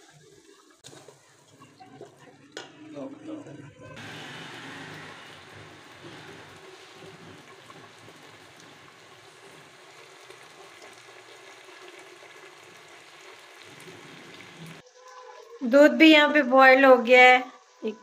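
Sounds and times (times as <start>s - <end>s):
food sizzling in hot oil: 4.0s - 15.6s.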